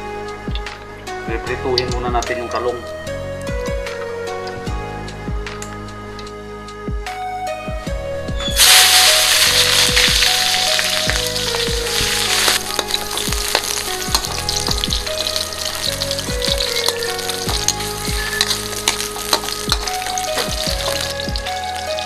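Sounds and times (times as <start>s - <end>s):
eggplant sizzling in oil: 8.4s - 22.0s.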